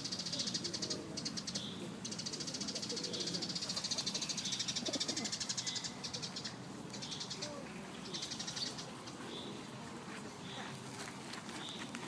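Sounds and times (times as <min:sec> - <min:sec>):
songbirds trilling: 0:00.0 - 0:12.0.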